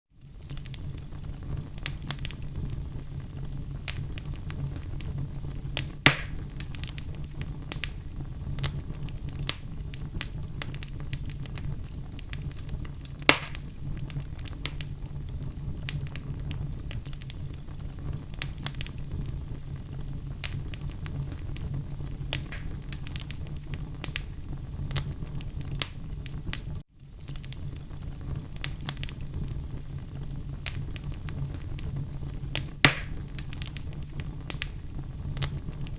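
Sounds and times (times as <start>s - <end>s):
wood fire crackling: 0.1s - 35.9s
sharp loud fire pops: 5.8s - 7.1s, 13.2s - 13.8s, 22.3s - 23.4s, 32.5s - 35.6s.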